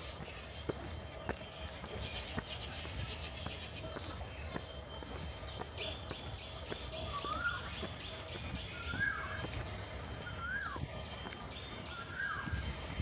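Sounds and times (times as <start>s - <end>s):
bird whistled call: 7.1s - 7.8s, 8.7s - 9.4s, 10.2s - 10.8s.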